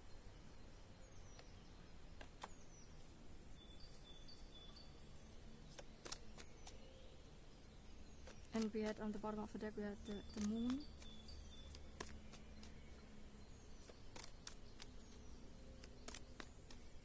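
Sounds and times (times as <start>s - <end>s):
distant bird chirps: 0.0s - 17.0s
soft clicks: 1.3s - 1.6s, 5.7s - 6.9s, 8.2s - 9.1s, 10.1s - 13.0s, 13.8s - 17.0s.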